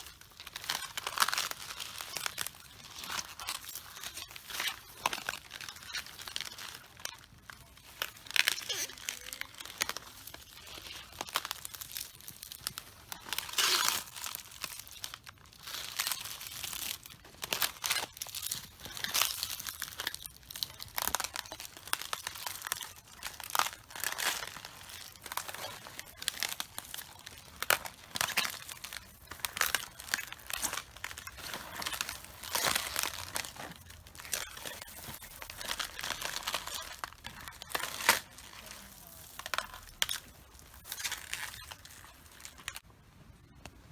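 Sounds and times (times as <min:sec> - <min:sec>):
cabbage leaves crunching underfoot: 0:19.1 - 0:42.8.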